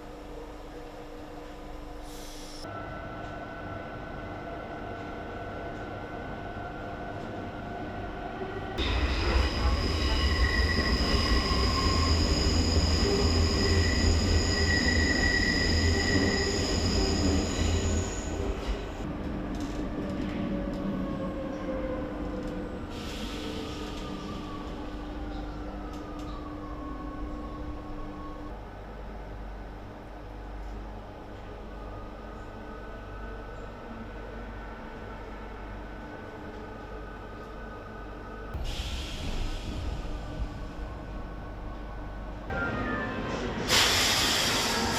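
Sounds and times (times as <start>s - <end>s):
subway train rumble: 0.0s - 44.9s.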